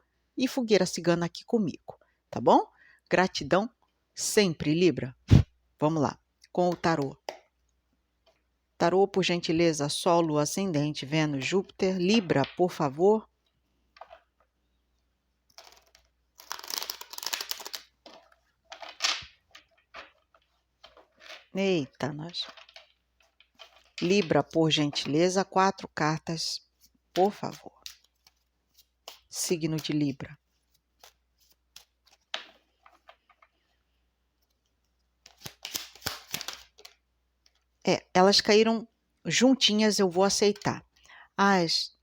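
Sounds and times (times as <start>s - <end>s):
cards riffling and rustling: 15.4s - 21.6s, 22.4s - 24.2s, 30.5s - 37.7s.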